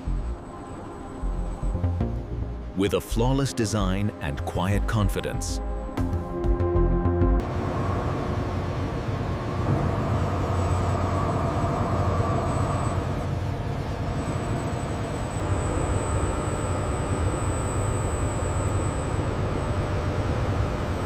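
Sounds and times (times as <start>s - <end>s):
low machine rumble: 0.0s - 5.0s, 7.4s - 21.0s
thin high whine: 7.5s - 21.0s.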